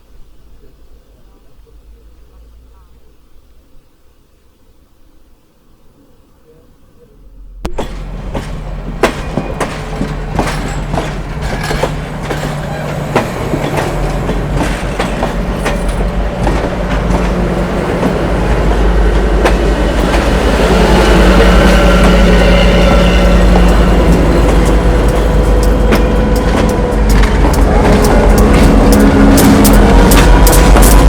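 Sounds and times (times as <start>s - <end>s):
diesel locomotive engine drone: 7.3s - 31.0s
train wheels clacking on rails: 7.7s - 31.0s.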